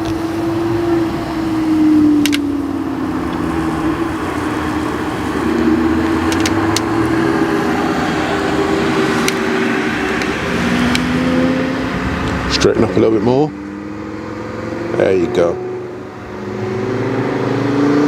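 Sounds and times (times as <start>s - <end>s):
car engine running: 0.0s - 17.9s
sharp clicks: 2.2s - 2.5s, 6.2s - 7.0s.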